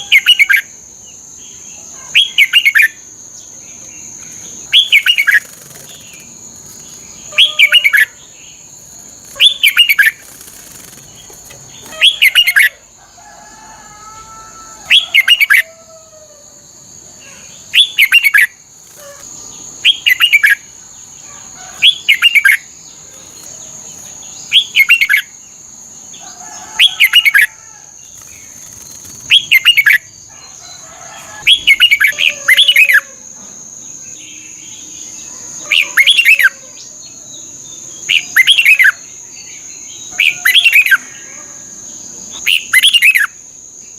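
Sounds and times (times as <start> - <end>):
bird singing warbled phrases: 0.0 - 0.7, 1.5 - 12.9, 14.9 - 15.7, 17.2 - 25.4, 26.8 - 30.5, 31.5 - 33.1, 34.2 - 36.6, 37.4 - 41.3, 42.3 - 43.4.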